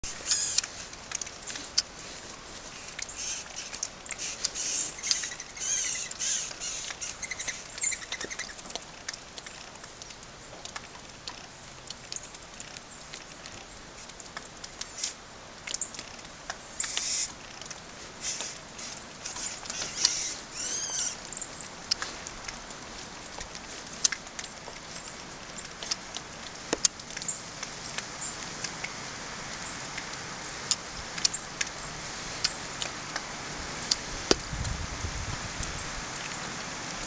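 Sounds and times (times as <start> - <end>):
small birds chirping: 0.0 - 0.7, 2.7 - 8.7, 16.7 - 17.4, 18.2 - 22.1
light quick ticks and pattering: 0.2 - 34.8.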